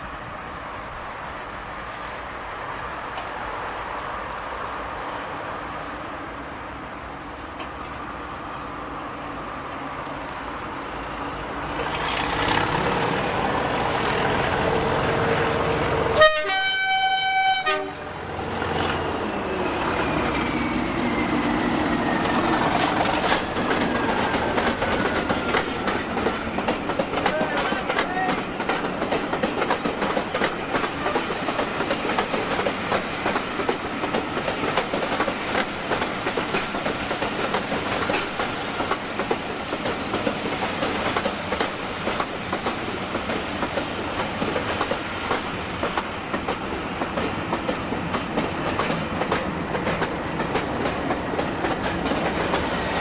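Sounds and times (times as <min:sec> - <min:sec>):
diesel locomotive engines running: 0:06.8 - 0:53.0
locomotive horn blast: 0:15.0 - 0:18.2.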